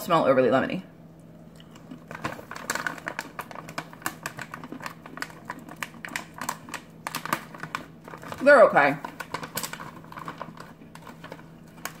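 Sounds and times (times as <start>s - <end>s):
crunchy snack being chewed: 1.5s - 8.4s.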